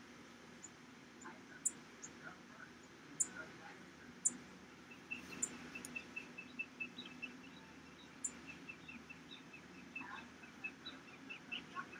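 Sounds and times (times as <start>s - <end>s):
faint low outdoor hum: 0.0s - 11.9s
small bird chirping: 1.5s - 2.2s, 2.8s - 3.4s, 4.2s - 11.9s.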